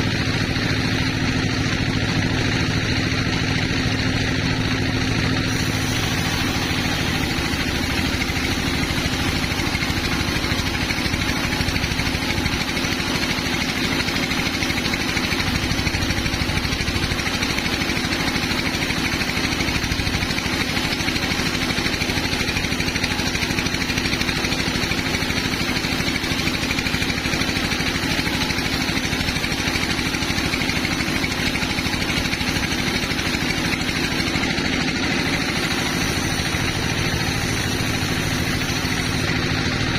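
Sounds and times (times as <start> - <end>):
sawmill engine drone: 0.0 - 39.9
hissing noise: 5.3 - 15.8, 30.5 - 39.9.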